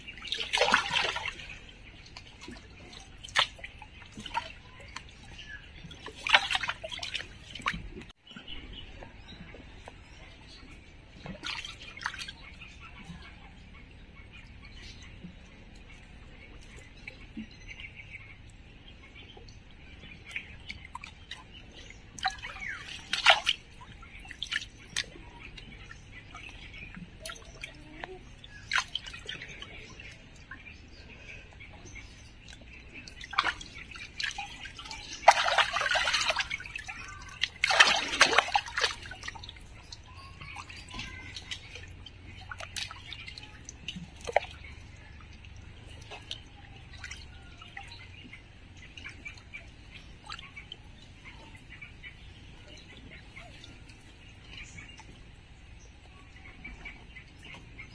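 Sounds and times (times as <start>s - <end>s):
water splashing: 0.0s - 8.2s, 9.2s - 13.7s, 19.3s - 57.8s.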